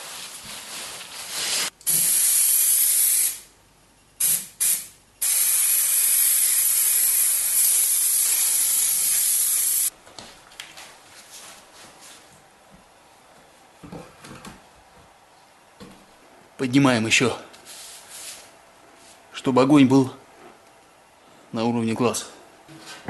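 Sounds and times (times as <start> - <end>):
hissing spray: 1.9 - 3.4, 4.2 - 9.9.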